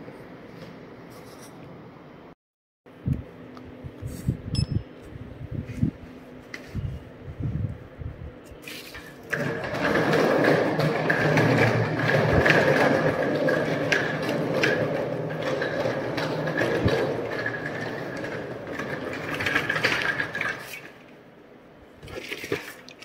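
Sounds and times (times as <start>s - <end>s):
steady high tone: 4.5s - 4.9s.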